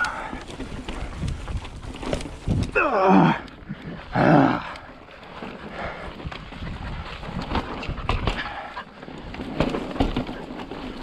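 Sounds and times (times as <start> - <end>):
bike rattling and knocking: 0.0 - 11.0
bike tyres rolling on rock: 0.0 - 11.0.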